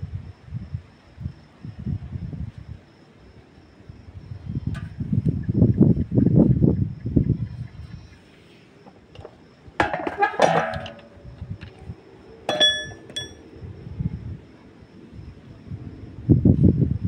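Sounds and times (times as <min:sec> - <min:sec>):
metal objects clinking: 0:09.2 - 0:11.2, 0:12.5 - 0:13.4
ringing strike on metal: 0:12.5 - 0:13.4.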